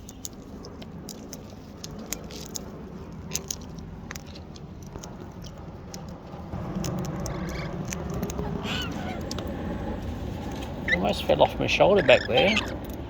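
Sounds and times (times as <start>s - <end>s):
low steady rumble: 0.0s - 13.0s
parrot beaks nibbling food: 1.0s - 9.5s.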